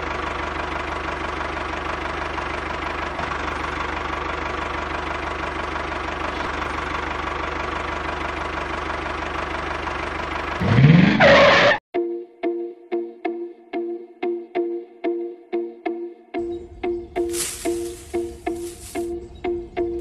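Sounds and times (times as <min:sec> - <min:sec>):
small engine running: 0:00.0 - 0:11.8, 0:17.1 - 0:19.4
plucked music notes: 0:12.0 - 0:20.0.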